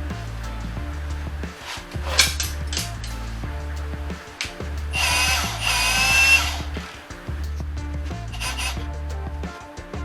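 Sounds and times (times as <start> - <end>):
background music with bass line: 0.0 - 10.0
sharp percussion hits: 0.0 - 10.0.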